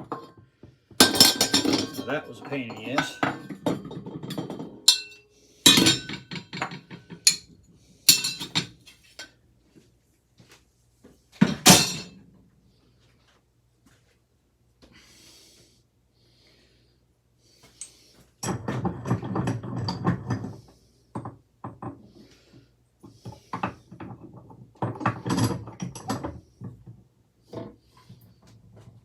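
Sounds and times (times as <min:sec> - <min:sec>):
metal fan parts clattering: 0:01.0 - 0:07.5, 0:08.1 - 0:09.3, 0:11.6 - 0:12.2.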